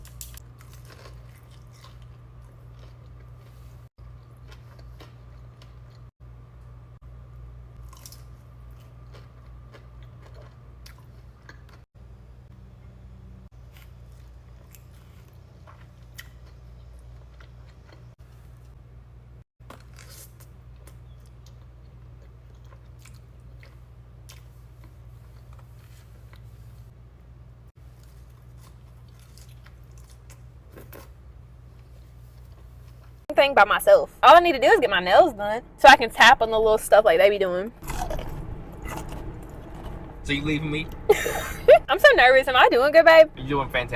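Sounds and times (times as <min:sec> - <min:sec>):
steady low hum: 0:00.0 - 0:19.4, 0:20.4 - 0:43.9
person chewing food: 0:00.1 - 0:06.1, 0:07.8 - 0:11.9, 0:13.6 - 0:18.7, 0:19.7 - 0:26.7, 0:27.8 - 0:33.2, 0:37.8 - 0:40.0
low hum: 0:30.0 - 0:43.9.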